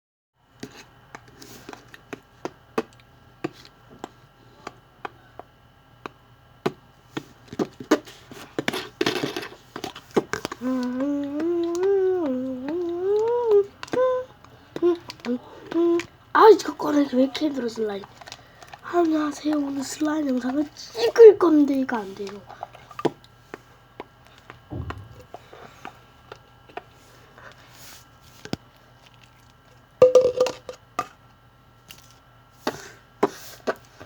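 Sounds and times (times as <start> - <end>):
person humming: 10.6 - 16.1.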